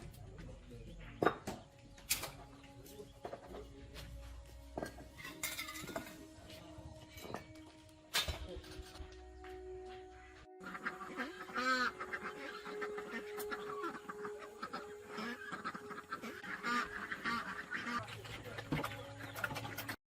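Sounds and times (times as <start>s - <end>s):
goose-like honking calls: 10.6s - 18.2s.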